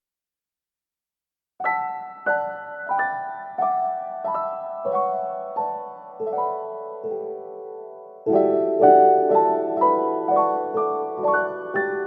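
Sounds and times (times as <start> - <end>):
soft piano chords: 1.6 - 12.0.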